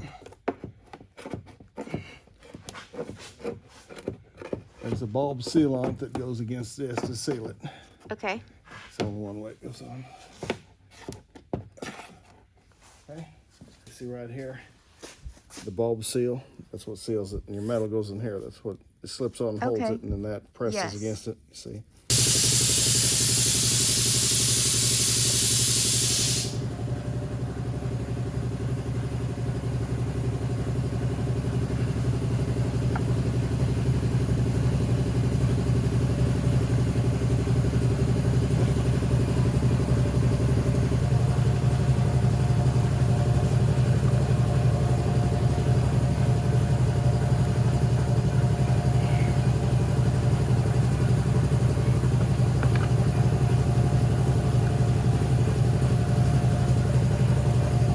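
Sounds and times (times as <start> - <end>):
loud hiss: 22.1 - 26.7.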